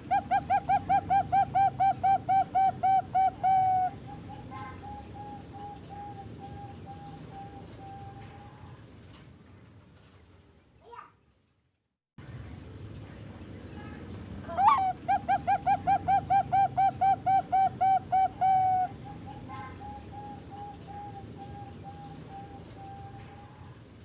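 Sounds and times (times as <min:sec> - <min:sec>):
zebra dove cooing: 0:00.0 - 0:08.4, 0:14.5 - 0:23.6.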